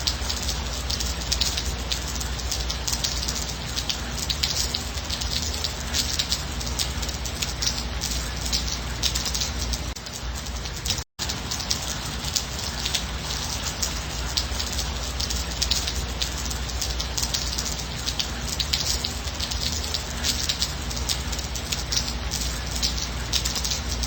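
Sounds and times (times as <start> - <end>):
raindrops ticking on a surface: 0.0 - 24.0
steady rain: 0.0 - 24.0.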